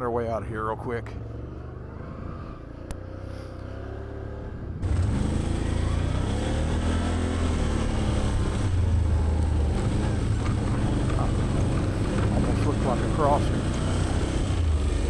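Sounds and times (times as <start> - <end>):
atv engine idling and accelerating: 0.0 - 15.0.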